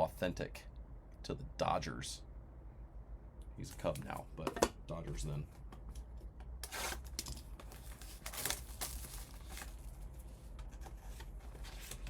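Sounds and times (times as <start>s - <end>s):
wrapper crinkling and tearing: 6.7s - 10.0s.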